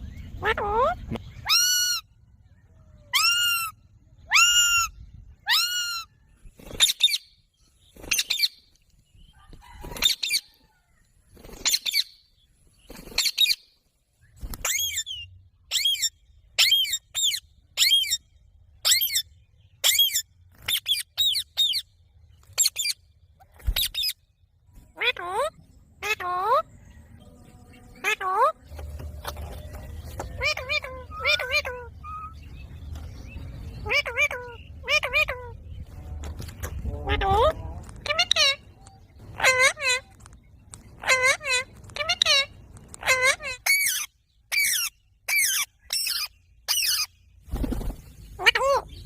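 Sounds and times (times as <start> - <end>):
parrot screeching: 1.4 - 2.0, 3.1 - 3.7, 4.3 - 6.1, 30.4 - 32.4, 41.0 - 47.1.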